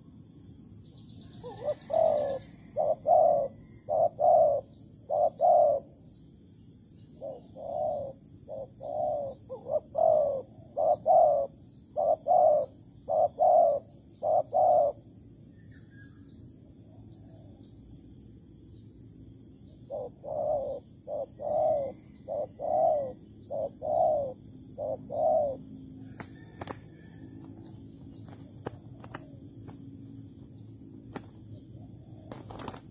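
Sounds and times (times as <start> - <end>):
small birds chirping: 0.7 - 32.9
dove cooing: 1.3 - 6.0, 7.1 - 15.1, 19.8 - 27.4, 28.2 - 29.8, 31.4 - 32.9.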